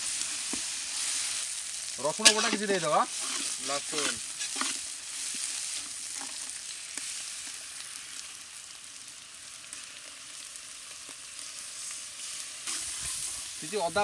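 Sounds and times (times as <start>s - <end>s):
onions sizzling in hot oil: 0.0s - 14.0s
metal spatula scraping: 2.2s - 6.5s, 12.6s - 13.4s.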